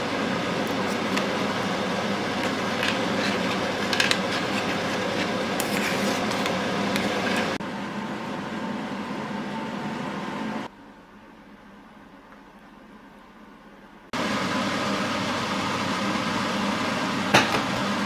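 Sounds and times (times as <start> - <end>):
household appliance hum: 0.0 - 12.3, 14.2 - 18.0
dishes clinking: 17.4 - 17.9.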